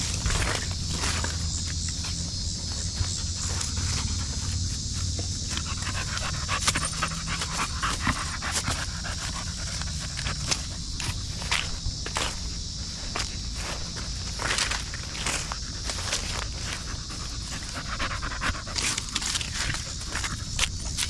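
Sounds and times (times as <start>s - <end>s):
dog panting: 2.5s - 11.8s, 15.5s - 20.6s.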